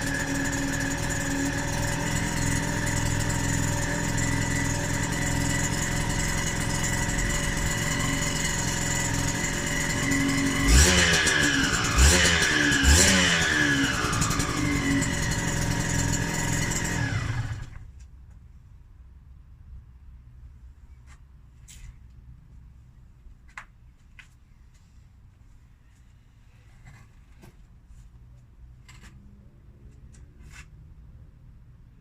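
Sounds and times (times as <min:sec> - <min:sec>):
two-stroke engine idling and revving: 0:00.0 - 0:17.9.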